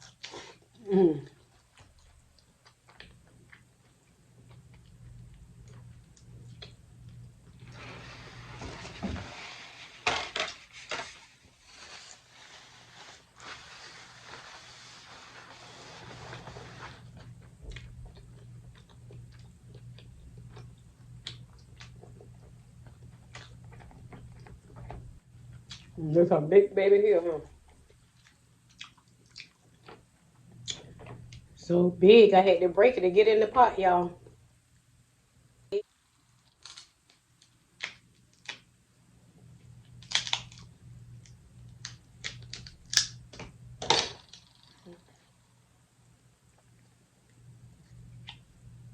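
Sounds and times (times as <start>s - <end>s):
faint low hum: 0.0s - 48.9s
chewing: 1.3s - 7.2s, 17.2s - 24.8s, 27.9s - 30.0s
crab shell cracking: 39.9s - 43.4s.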